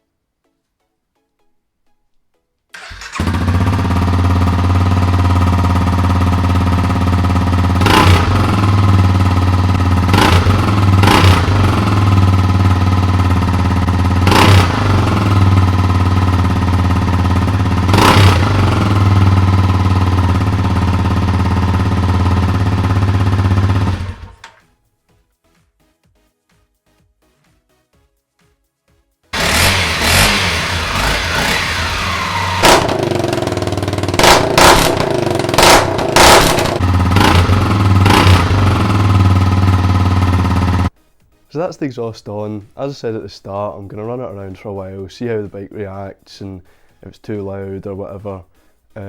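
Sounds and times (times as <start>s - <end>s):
motorcycle engine idling with throttle blips: 2.8s - 24.6s, 29.4s - 40.9s.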